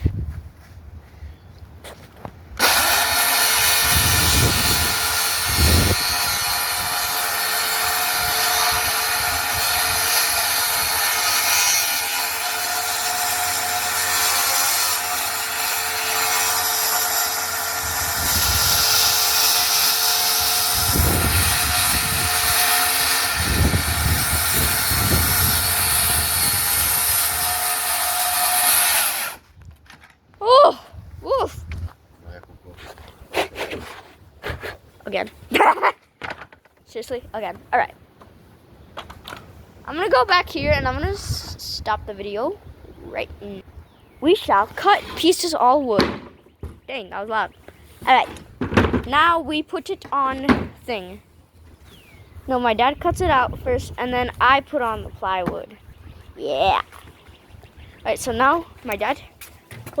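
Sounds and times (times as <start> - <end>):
power saw cutting plywood: 2.6 - 29.4.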